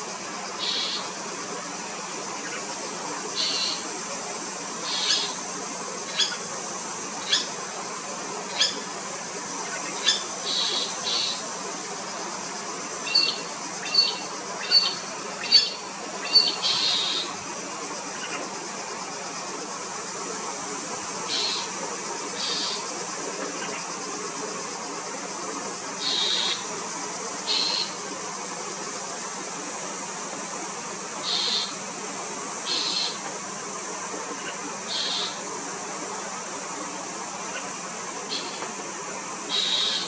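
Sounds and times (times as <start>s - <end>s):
steady high hiss: 0.0s - 40.0s
birds giving harsh grating calls: 31.2s - 31.7s.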